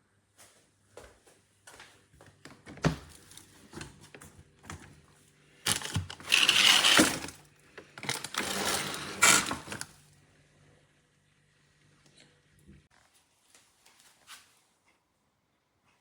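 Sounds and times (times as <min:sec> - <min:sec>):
clattering rustling noise: 0:05.7 - 0:09.9.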